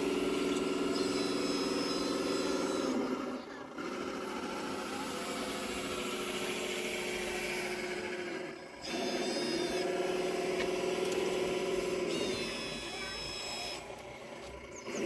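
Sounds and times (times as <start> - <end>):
model machine motors whining: 0.0 - 15.0.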